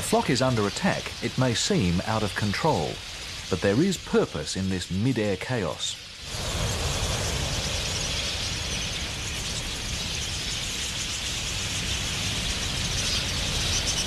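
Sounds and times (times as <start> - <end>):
massed high chattering calls: 0.0 - 14.0
rushing wings: 6.1 - 14.0.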